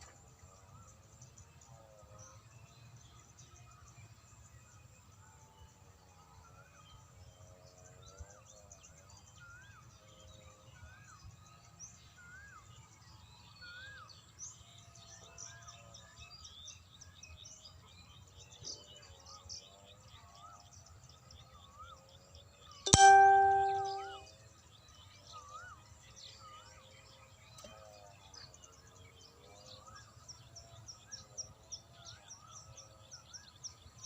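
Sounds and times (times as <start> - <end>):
high bird chirps: 22.9 - 24.2.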